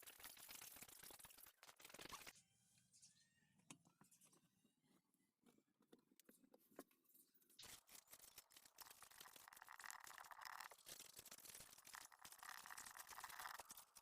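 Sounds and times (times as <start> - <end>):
continuous rasping scratch: 0.0 - 2.4, 7.1 - 14.0.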